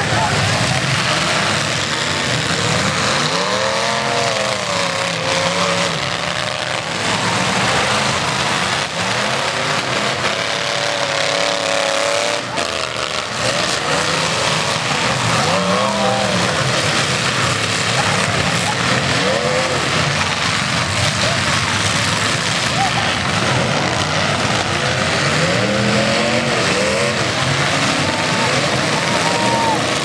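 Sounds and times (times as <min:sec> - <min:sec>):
car engines revving hard: 0:00.0 - 0:30.0.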